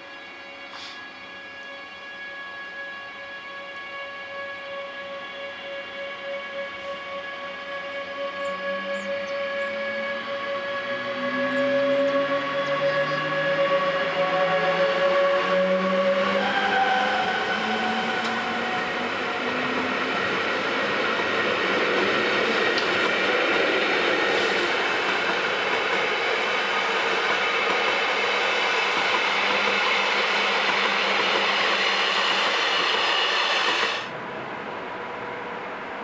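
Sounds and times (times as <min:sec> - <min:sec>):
horn-like tone: 0:00.0 - 0:20.3
train wheel and rail noise: 0:00.0 - 0:36.0.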